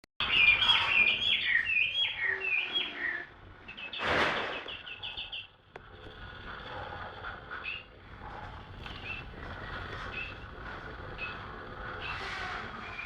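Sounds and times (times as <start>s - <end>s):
songbird singing: 0.2s - 5.6s.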